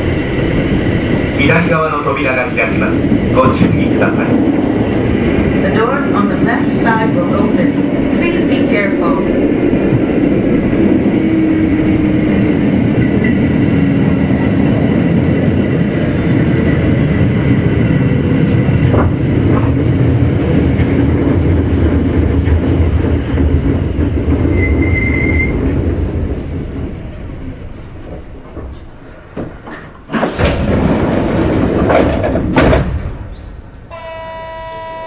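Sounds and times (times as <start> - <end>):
train wheel and motor noise: 0.0 - 35.0
brake squeal: 24.5 - 25.6.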